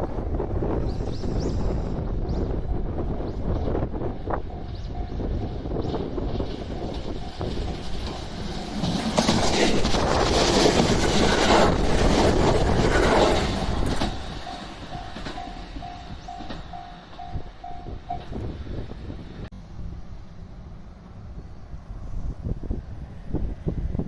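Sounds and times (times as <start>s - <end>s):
train wheels clattering on rails: 2.6s - 19.0s
level crossing warning bell: 14.0s - 18.5s.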